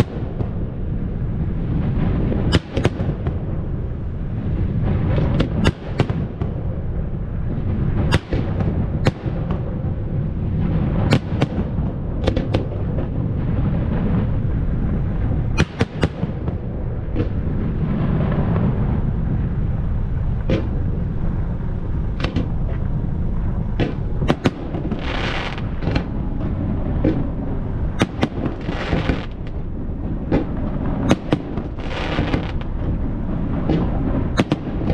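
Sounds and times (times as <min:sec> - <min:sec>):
low rumble: 0:00.0 - 0:34.9
fireworks shells bursting: 0:28.0 - 0:29.6, 0:30.3 - 0:32.7.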